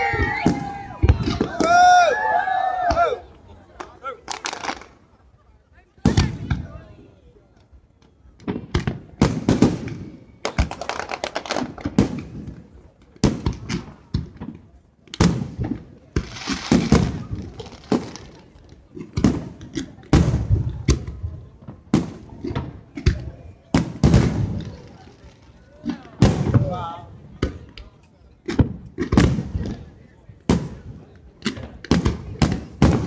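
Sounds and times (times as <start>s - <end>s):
fireworks bangs and crackle: 0.0s - 5.4s, 6.0s - 33.0s.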